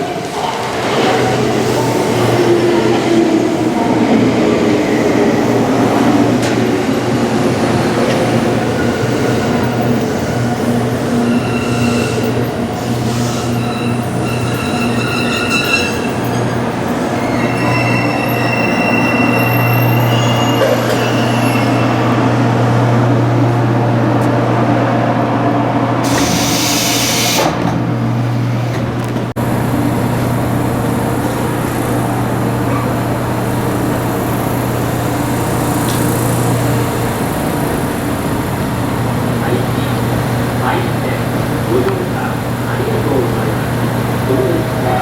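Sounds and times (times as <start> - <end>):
train running on rails: 0.0 - 45.0
wheel squeal: 8.8 - 22.2.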